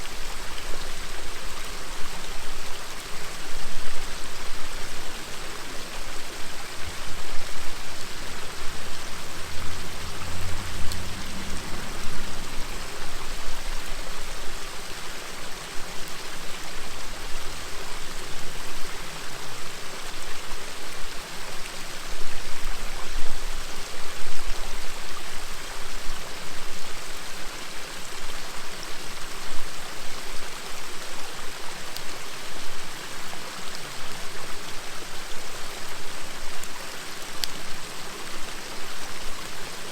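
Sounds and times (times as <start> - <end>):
river murmuring: 0.0 - 24.0
campfire crackles: 6.4 - 17.3, 33.7 - 38.5.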